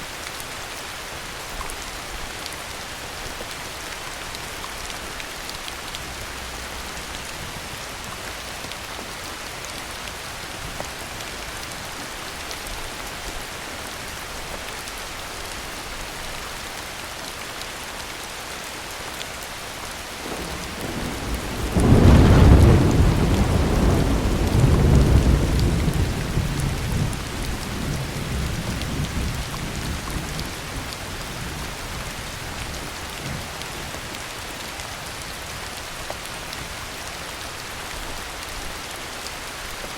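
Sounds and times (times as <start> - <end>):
heavy rain hiss: 17.8 - 39.9
thunder rolling: 20.2 - 30.4.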